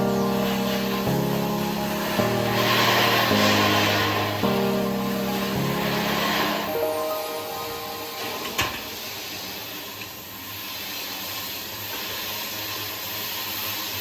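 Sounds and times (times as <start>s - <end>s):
welding arc hissing and crackling: 0.0s - 6.8s, 8.5s - 14.0s.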